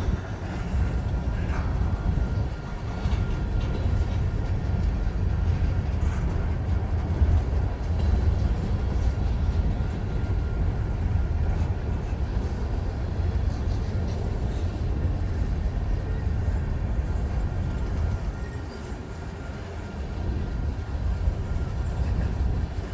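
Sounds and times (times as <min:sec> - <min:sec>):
freight train rumbling past: 0:00.0 - 0:22.9.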